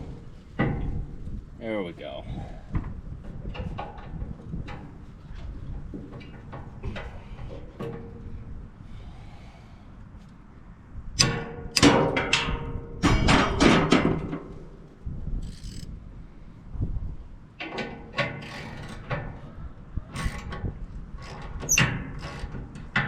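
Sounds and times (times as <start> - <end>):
loud metallic clanks and scrapes: 11.2 - 14.6, 17.6 - 19.5.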